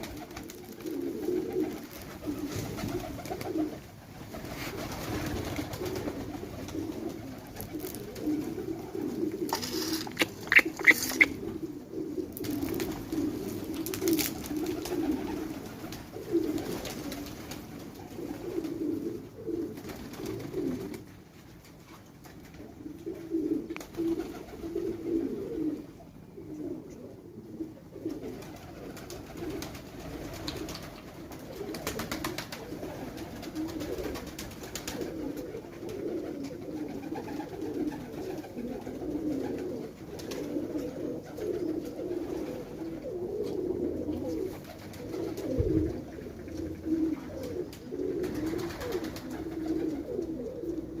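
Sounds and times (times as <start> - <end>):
pigeons cooing: 0.0 - 21.2, 22.5 - 51.0
short clicks: 9.5 - 11.4.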